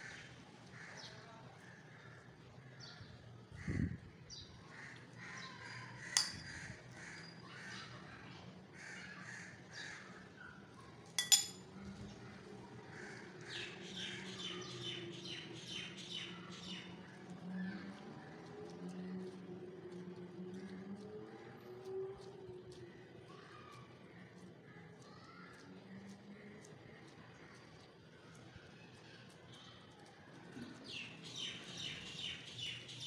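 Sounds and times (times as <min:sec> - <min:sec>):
metal spoon clinking glass lid: 0:06.2 - 0:06.5, 0:11.2 - 0:11.6.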